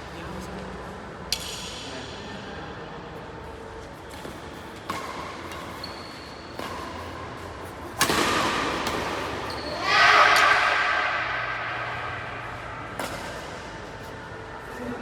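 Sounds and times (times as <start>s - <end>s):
racket hitting shuttlecock: 4.1s - 14.0s.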